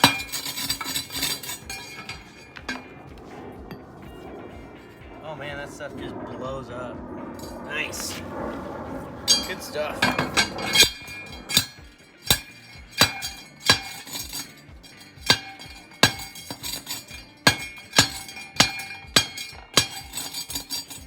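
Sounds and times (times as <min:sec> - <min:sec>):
rock crusher ringing strikes: 0:00.0 - 0:03.0, 0:09.3 - 0:21.0.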